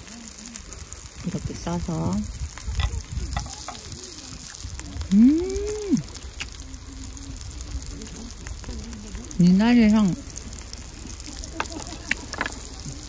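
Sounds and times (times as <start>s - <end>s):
meat sizzling on a griddle: 0.0s - 13.0s
person humming mmm: 5.1s - 6.1s.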